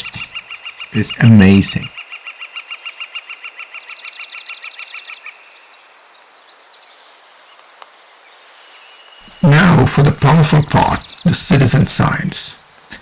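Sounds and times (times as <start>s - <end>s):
high bird trill: 0.0s - 2.1s, 9.2s - 12.3s
bird singing repeated notes: 0.0s - 5.7s, 9.2s - 12.4s
faint background hiss: 0.0s - 13.0s.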